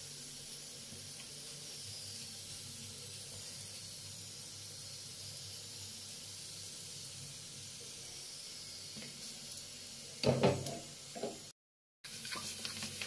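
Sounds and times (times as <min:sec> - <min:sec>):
flatbread sizzling on hot griddle: 0:00.0 - 0:13.0
knocks at the stove: 0:10.2 - 0:11.4.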